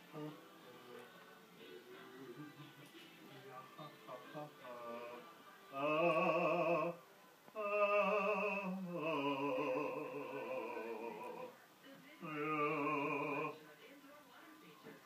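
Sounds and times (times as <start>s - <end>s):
person singing operatically: 4.4s - 7.0s, 7.6s - 11.5s, 12.2s - 13.6s.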